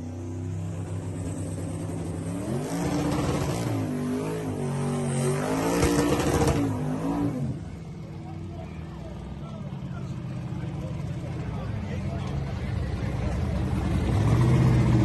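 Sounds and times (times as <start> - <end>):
drag racing car engine revving: 0.4 - 7.8, 13.6 - 15.0.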